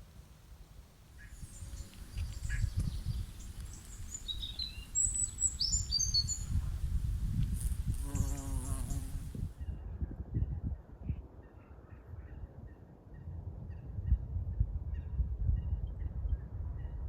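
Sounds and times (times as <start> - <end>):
songbirds chirping: 0.4 - 6.9, 8.0 - 9.4.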